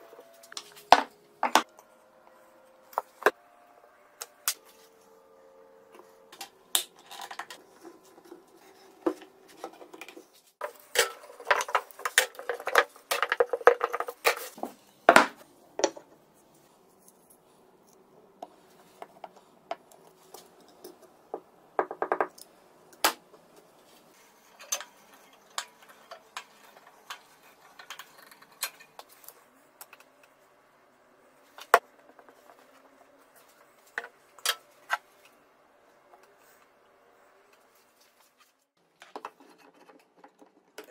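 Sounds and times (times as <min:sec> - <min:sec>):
metal parts and tools clinking: 0:06.4 - 0:08.3, 0:24.2 - 0:29.4.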